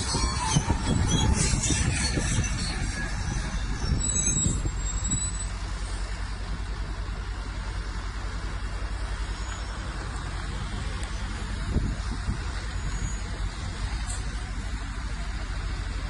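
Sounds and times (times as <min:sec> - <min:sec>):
high-pitched metallic squeal: 0:00.0 - 0:05.9, 0:11.2 - 0:14.5
diesel engine rumbling: 0:00.0 - 0:16.0.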